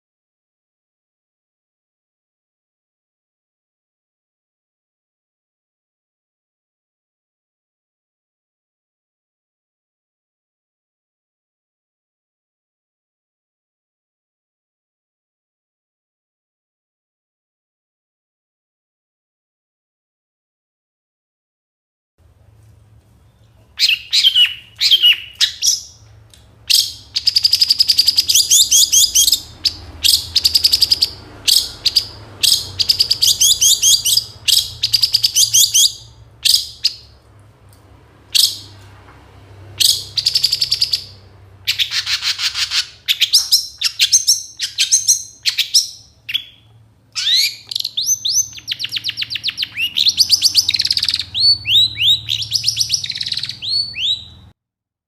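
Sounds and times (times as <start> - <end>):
bird singing rapid trills: 23.3 - 26.0, 26.7 - 37.2, 39.8 - 54.5.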